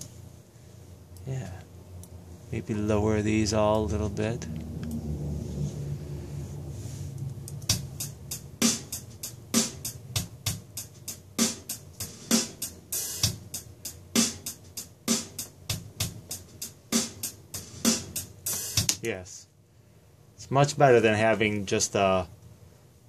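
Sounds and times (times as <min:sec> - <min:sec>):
programmed drum loop: 0:07.6 - 0:19.3.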